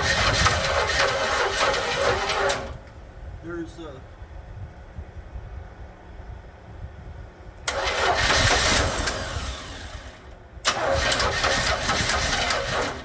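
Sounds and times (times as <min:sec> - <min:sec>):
car engine starter cranking: 0:00.0 - 0:03.0, 0:07.6 - 0:13.0.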